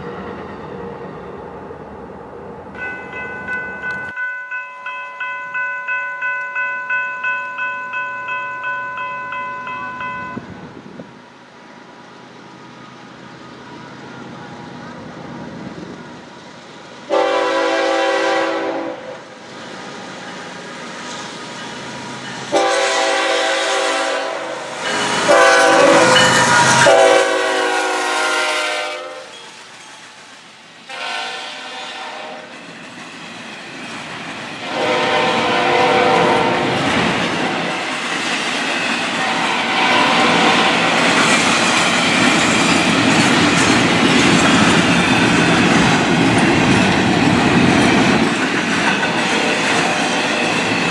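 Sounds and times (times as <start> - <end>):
train rumbling past: 0.0 - 50.9
locomotive air horn blasts: 17.1 - 19.2, 22.5 - 29.4, 30.9 - 32.5, 34.6 - 36.7, 39.2 - 40.7
wheels clattering on rails: 36.2 - 50.9.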